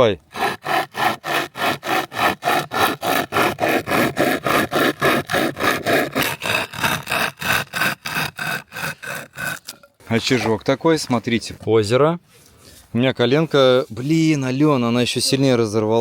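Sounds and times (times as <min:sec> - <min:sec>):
hand saw cutting wood: 0:00.0 - 0:11.4.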